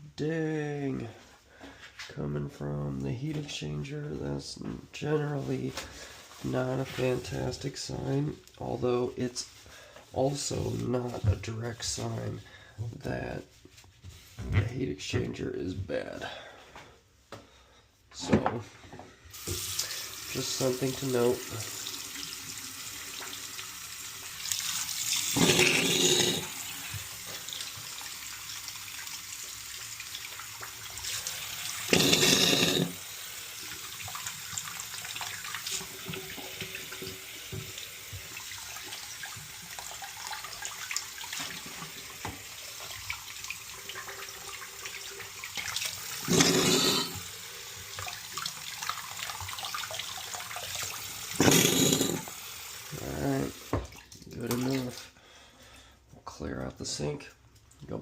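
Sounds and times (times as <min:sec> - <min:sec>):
tap water running into sink: 0:19.4 - 0:55.0.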